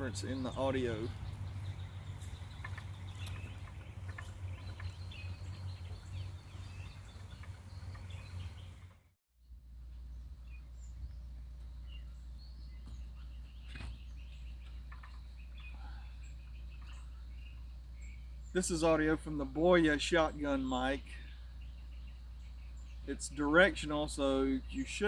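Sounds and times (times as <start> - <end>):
distant highway traffic rumble: 0.0 - 9.0
birds chirping: 0.0 - 9.1, 10.0 - 25.0.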